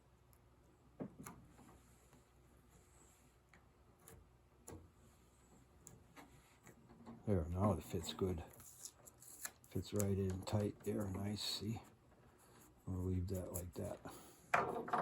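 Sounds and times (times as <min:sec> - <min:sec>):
faint sharp clicks and taps: 0:08.5 - 0:11.2.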